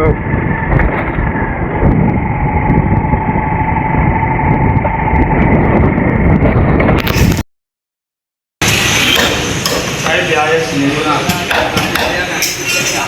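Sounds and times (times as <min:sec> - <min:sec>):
vehicle engine rumble: 0:00.0 - 0:07.4
wind noise on microphone: 0:00.0 - 0:07.4.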